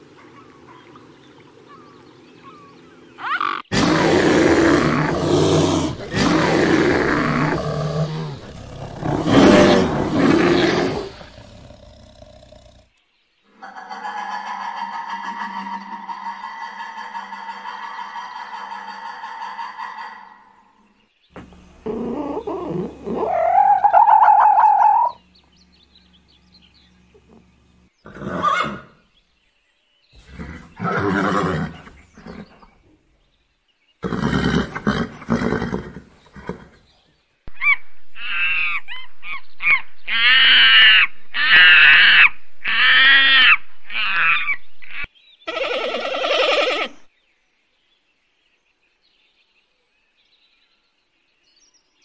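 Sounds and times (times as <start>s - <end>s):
animal calls: 0.0s - 12.6s, 13.5s - 20.8s, 21.4s - 25.3s, 27.1s - 29.1s, 34.0s - 47.1s
short repeated rising falling calls: 21.8s - 25.2s.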